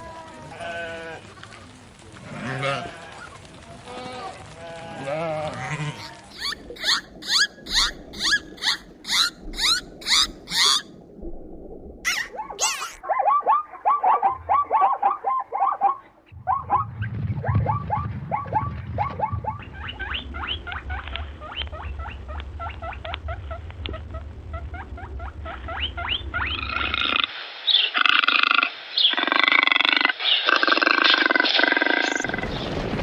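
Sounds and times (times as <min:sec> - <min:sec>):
harsh animal calls: 0:05.5 - 0:10.9, 0:12.1 - 0:13.0, 0:24.6 - 0:32.6
animal squeaking: 0:05.9 - 0:10.9, 0:12.1 - 0:13.0
low rumble: 0:16.3 - 0:26.8.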